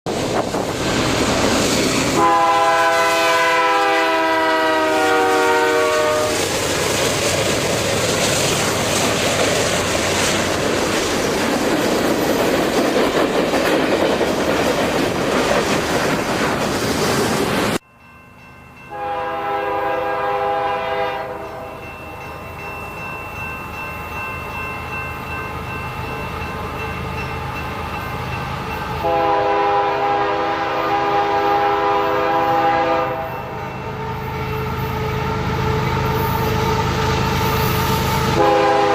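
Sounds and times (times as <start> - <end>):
model train running on rails: 0.1 - 38.9
model train horn: 2.2 - 6.5, 18.9 - 21.8, 29.0 - 38.9.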